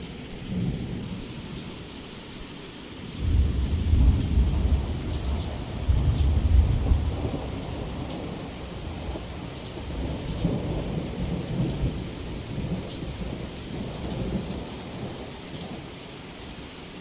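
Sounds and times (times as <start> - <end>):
heavy rain: 0.0 - 17.0
thunder rumbling: 3.0 - 15.9.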